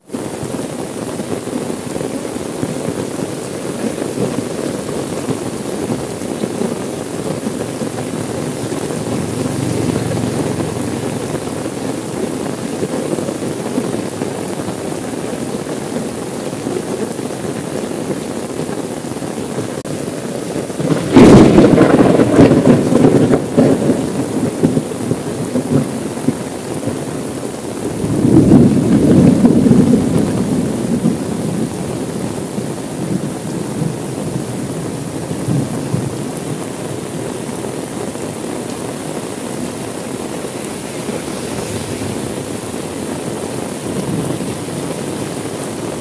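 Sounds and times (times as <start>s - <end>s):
rain on a car: 0.0s - 46.0s
thunder clap: 20.8s - 24.9s, 28.0s - 31.2s, 40.2s - 45.4s.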